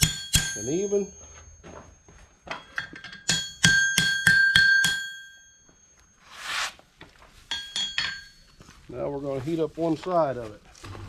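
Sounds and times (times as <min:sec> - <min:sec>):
hammer striking horseshoe on anvil: 0:00.0 - 0:01.8, 0:02.5 - 0:05.5, 0:07.5 - 0:08.4.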